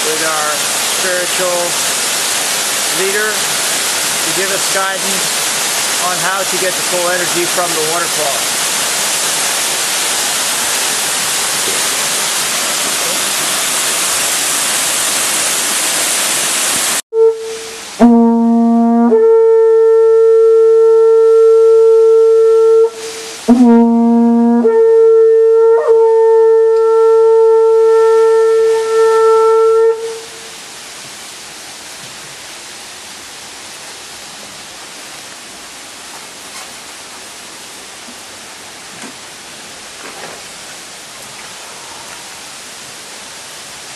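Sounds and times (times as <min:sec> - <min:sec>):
waterfall rushing: 0:00.0 - 0:18.2, 0:22.0 - 0:24.0, 0:25.8 - 0:43.9
falling water: 0:00.0 - 0:43.9
conch shell trumpet notes: 0:17.1 - 0:30.6.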